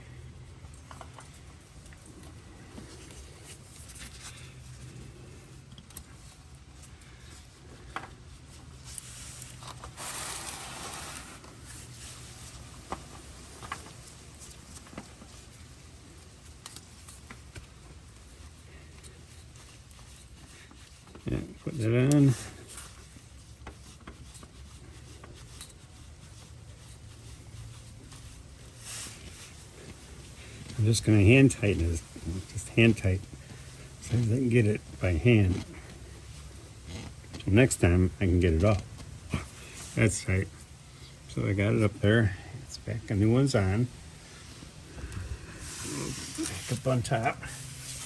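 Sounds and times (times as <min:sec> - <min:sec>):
low steady hum: 0:00.0 - 0:48.0
rustling hiss: 0:08.4 - 0:21.2, 0:43.3 - 0:48.0.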